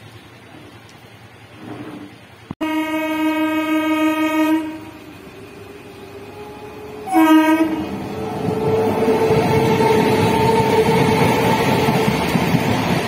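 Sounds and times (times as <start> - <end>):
train running noise: 0.0 - 13.0
train horn blasts: 2.6 - 5.2, 6.3 - 11.2.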